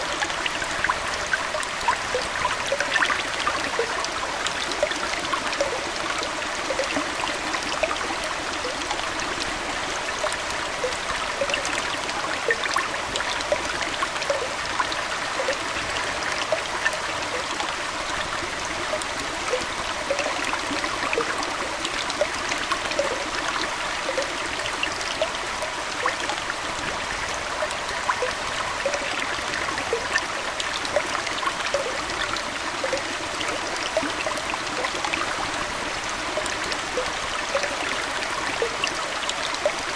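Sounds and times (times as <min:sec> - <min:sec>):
aquarium water trickling: 0:00.0 - 0:39.9
small bubbling plinks: 0:00.0 - 0:39.9.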